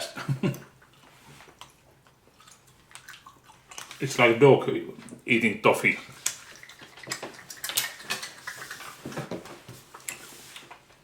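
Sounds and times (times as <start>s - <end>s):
sticky chewing and lip-smacking: 0.5s - 4.0s, 6.1s - 8.9s.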